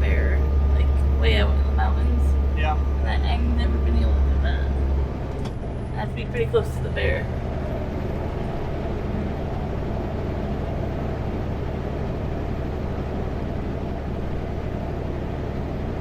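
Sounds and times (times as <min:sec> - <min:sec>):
truck diesel engine droning: 0:00.0 - 0:16.0.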